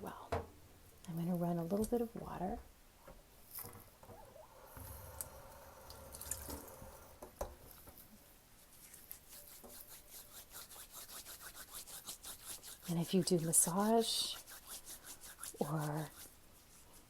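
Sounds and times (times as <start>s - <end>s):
tap running water: 3.6s - 7.6s
hands rubbing wet coffee grounds: 8.6s - 17.0s.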